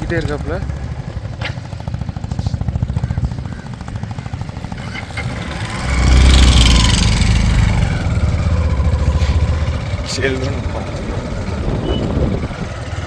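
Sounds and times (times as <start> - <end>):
motorcycle engine running: 0.0 - 13.0
vehicle passing by: 4.7 - 13.0.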